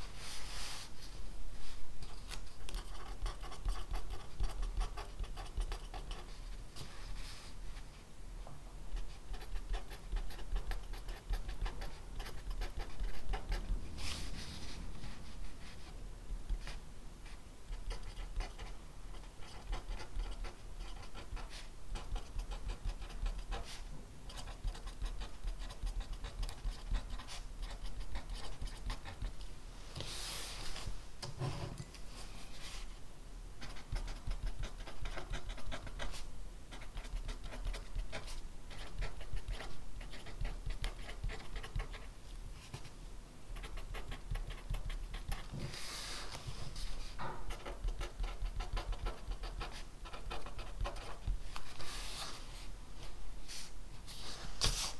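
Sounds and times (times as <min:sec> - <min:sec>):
pen scratching on paper: 0:02.6 - 0:06.4, 0:08.9 - 0:13.8, 0:17.7 - 0:29.4, 0:33.6 - 0:42.1, 0:43.6 - 0:52.3.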